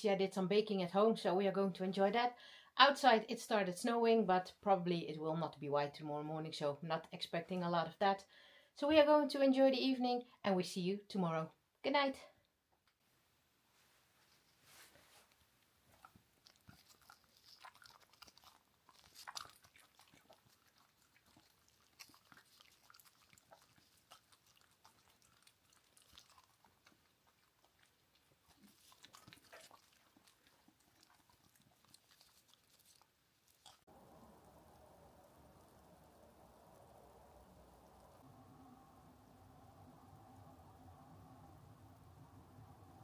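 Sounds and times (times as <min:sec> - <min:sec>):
faint chewing and crunching: 0:14.2 - 0:39.0.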